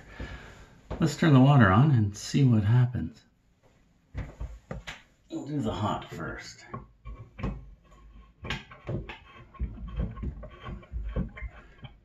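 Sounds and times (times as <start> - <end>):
knocks and bumps around sink: 4.2 - 5.0, 5.8 - 12.0.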